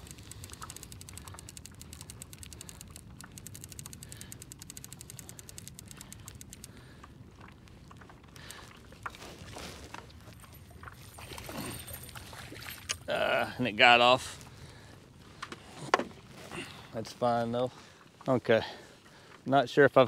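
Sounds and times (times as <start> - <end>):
fishing reel clicking: 0.0 - 6.9.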